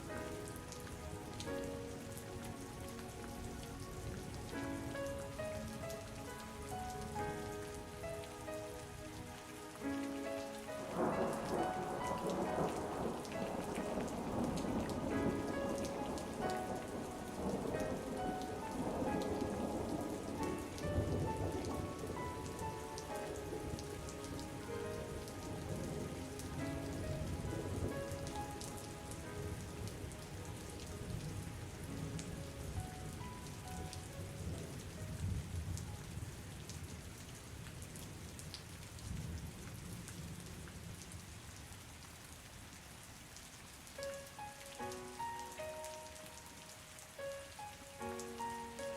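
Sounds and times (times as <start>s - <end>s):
soft melodic music: 0.0s - 37.0s, 43.9s - 48.9s
steady rain: 0.0s - 48.9s
rumble of thunder: 10.9s - 33.2s.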